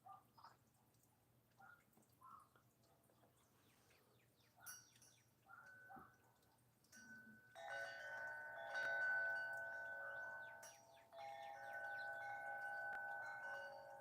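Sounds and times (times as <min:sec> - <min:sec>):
wind chimes ringing: 0:04.7 - 0:05.8, 0:06.9 - 0:14.0.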